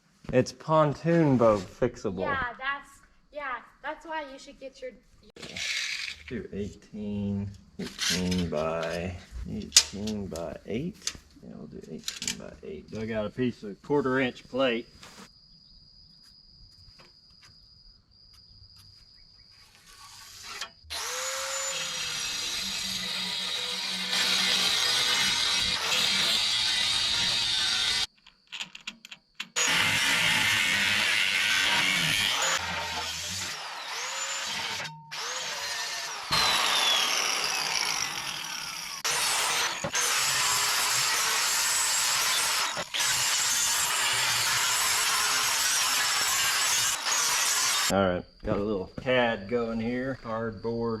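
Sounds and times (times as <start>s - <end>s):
power tool whirring: 5.4s - 6.3s, 19.8s - 28.1s, 29.5s - 47.9s.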